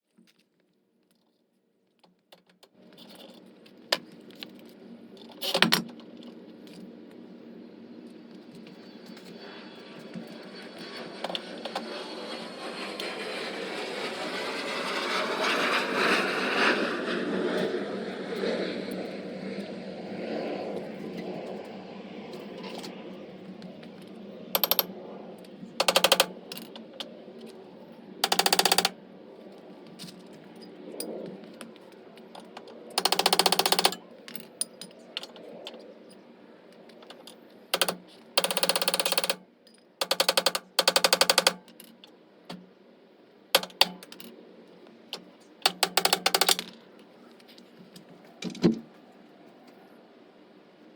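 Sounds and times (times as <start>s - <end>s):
broad rushing noise: 9.4s - 28.2s
pneumatic impact wrench rattling: 25.8s - 26.7s, 28.2s - 28.9s, 33.0s - 34.0s, 37.8s - 39.4s, 40.0s - 41.8s, 43.6s - 44.2s, 45.6s - 46.7s.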